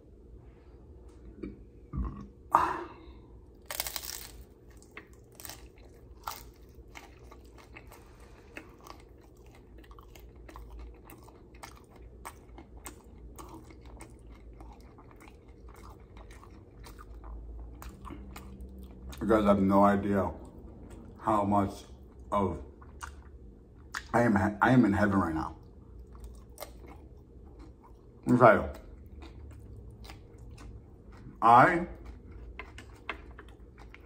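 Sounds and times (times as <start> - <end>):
chip crunching bite: 3.6 - 18.6
crunchy chewing: 3.6 - 19.3, 25.9 - 34.0.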